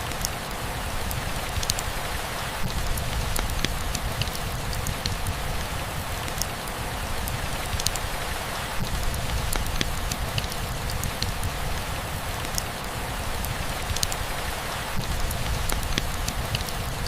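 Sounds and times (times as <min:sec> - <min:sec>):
raindrops ticking on a surface: 0:00.0 - 0:17.0
steady rain hiss: 0:00.0 - 0:17.0.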